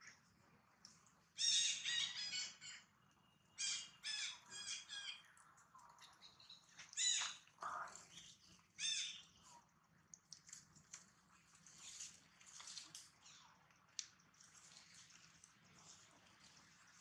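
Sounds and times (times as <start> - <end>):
birds calling: 1.4 - 9.4.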